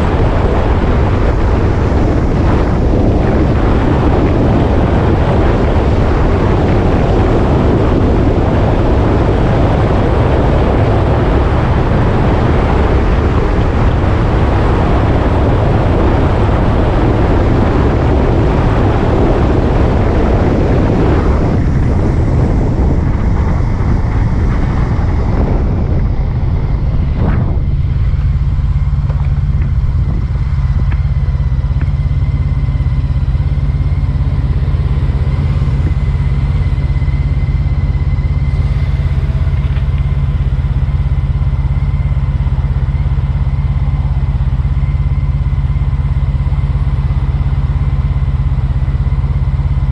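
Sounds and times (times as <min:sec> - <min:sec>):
motorcycle engine running: 0:00.0 - 0:49.9
wind noise on microphone: 0:00.0 - 0:49.9.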